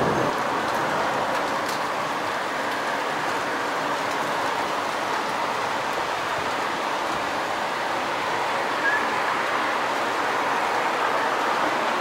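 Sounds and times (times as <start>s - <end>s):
heavy rain hissing: 0.0s - 12.0s.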